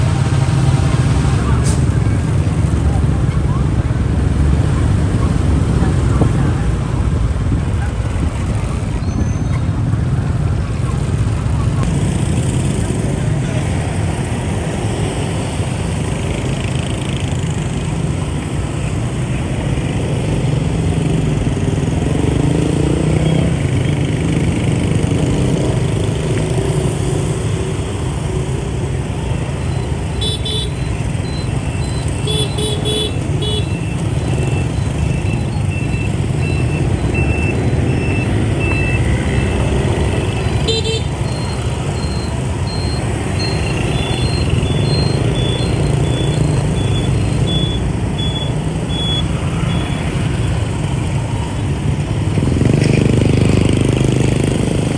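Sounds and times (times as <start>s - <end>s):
motorbike traffic rumble: 0.0s - 54.9s
faint high beep: 41.2s - 50.1s.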